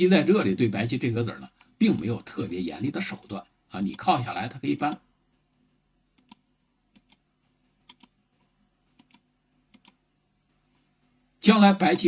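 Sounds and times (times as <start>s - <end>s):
computer mouse clicks: 6.1s - 8.2s, 8.9s - 10.0s.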